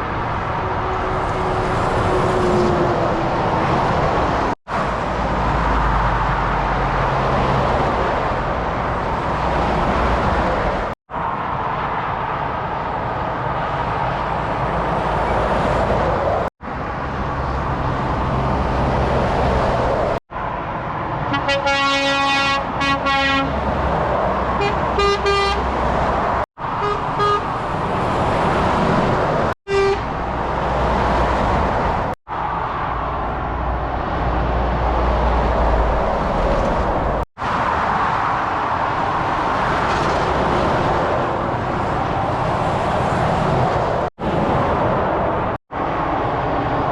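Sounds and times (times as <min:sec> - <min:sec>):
heavy motorway traffic: 0:00.0 - 0:46.9
vehicle horn: 0:21.3 - 0:23.6, 0:24.6 - 0:25.7, 0:26.8 - 0:27.5, 0:29.7 - 0:30.2.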